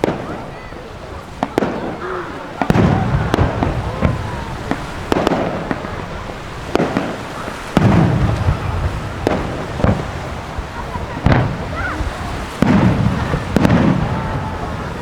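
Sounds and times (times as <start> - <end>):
fireworks bangs: 0.0 - 15.0
low rolling boom: 2.6 - 6.9.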